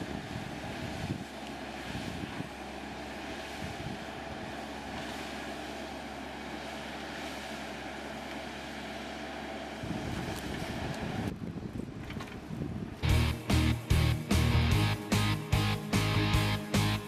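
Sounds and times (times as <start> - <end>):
machinery humming: 13.0 - 17.0.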